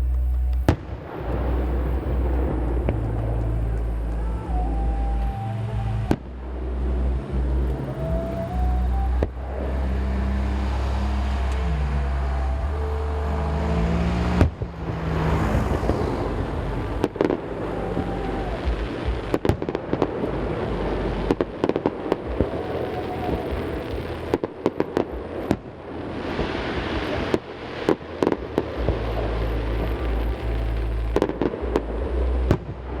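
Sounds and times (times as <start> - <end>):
fireworks crackle: 0.0 - 33.0
low steady hum: 0.0 - 33.0
fireworks bangs echoing: 0.6 - 4.9, 13.2 - 30.5.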